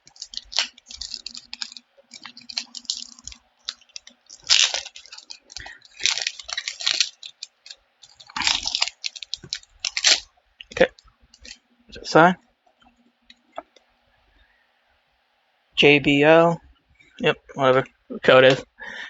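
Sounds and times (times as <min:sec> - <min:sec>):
foil wrapper crinkling and tearing: 0:00.0 - 0:11.6
rustles of handling: 0:00.0 - 0:11.6.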